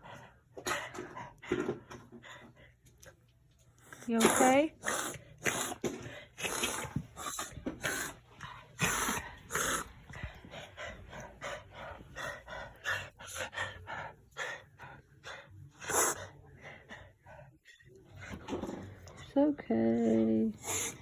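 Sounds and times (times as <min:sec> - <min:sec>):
dog wheezing breaths: 0:03.9 - 0:19.3, 0:20.5 - 0:21.0
dog coughing: 0:04.2 - 0:08.2, 0:08.8 - 0:09.9.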